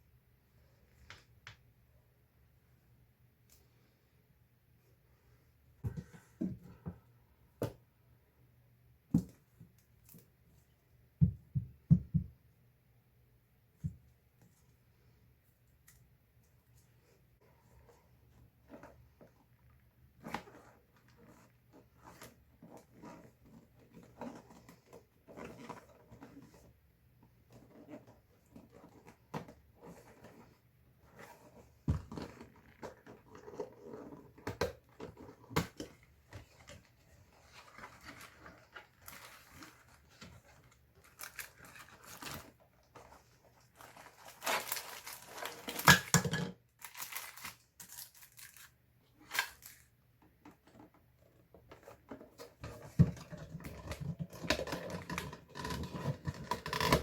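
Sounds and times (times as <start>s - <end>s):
packaging tearing and crinkling: 41.0s - 42.6s, 43.8s - 46.1s, 46.8s - 49.9s.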